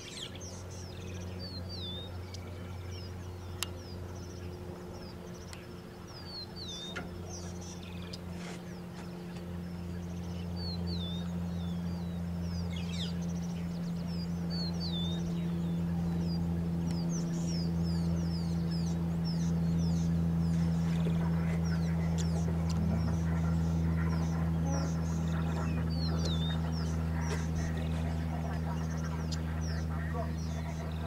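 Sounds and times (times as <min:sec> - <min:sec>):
birds chirping and whistling: 0:00.0 - 0:31.0
steady low hum: 0:00.0 - 0:31.0.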